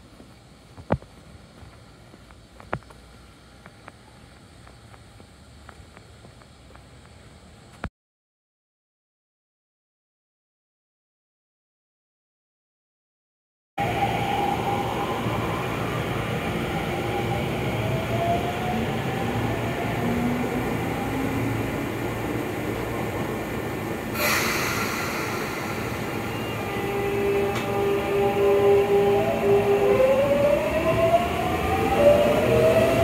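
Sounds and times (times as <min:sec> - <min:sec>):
air hiss burst: 0:24.1 - 0:26.8.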